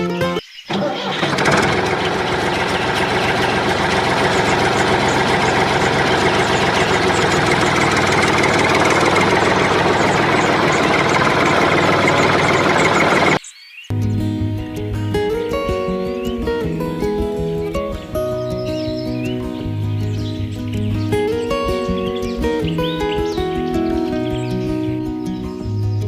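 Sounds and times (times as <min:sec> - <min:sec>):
engine idling: 0:00.7 - 0:13.4.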